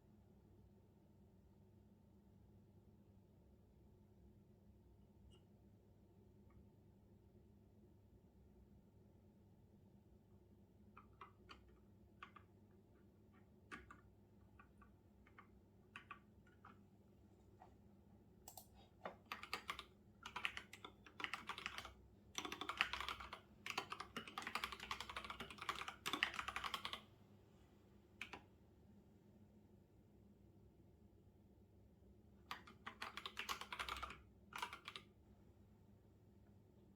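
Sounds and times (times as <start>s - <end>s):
typing on computer keyboard: 10.9s - 16.8s, 18.5s - 27.1s, 28.2s - 28.4s, 32.5s - 35.1s.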